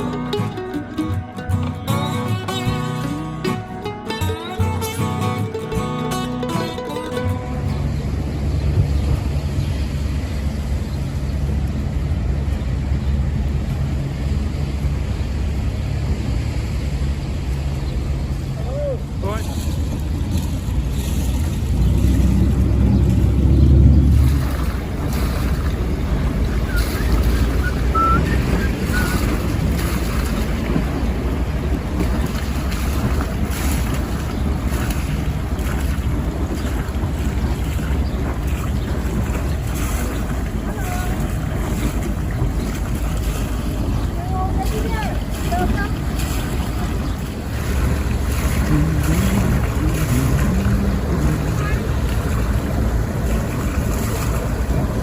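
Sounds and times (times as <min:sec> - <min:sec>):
boat engine running: 0:00.0 - 0:55.0
wind buffeting microphone: 0:07.1 - 0:55.0.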